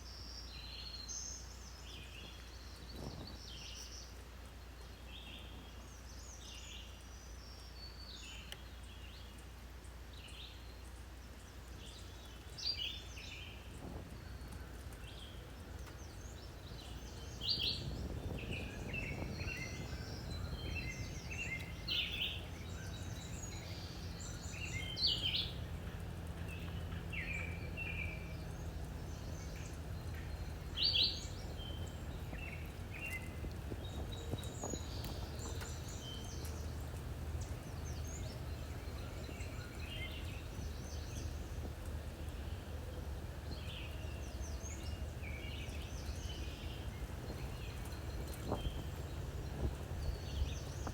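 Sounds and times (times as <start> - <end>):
small birds chirping: 0.0 - 50.9
low steady rumble: 0.1 - 50.9.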